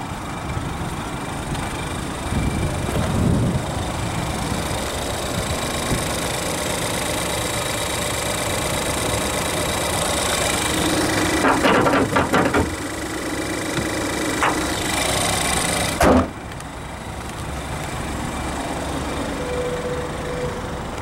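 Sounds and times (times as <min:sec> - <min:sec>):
car engine idling: 0:00.0 - 0:21.0
loud rustling knocks: 0:11.4 - 0:12.8.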